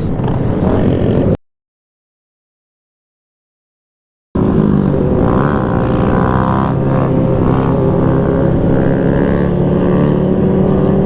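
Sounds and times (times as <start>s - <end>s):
motorcycle engines running: 0.0s - 1.4s, 4.4s - 11.0s.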